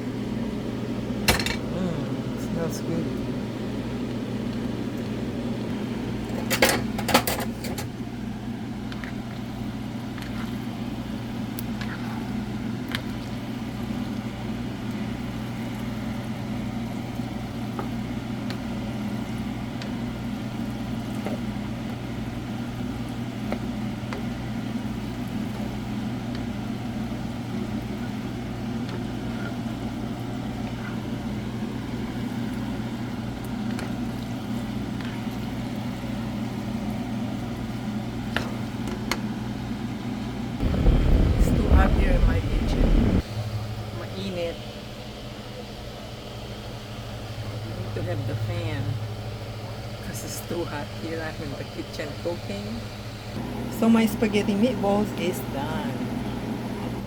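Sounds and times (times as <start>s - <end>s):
motor humming: 40.6s - 43.6s.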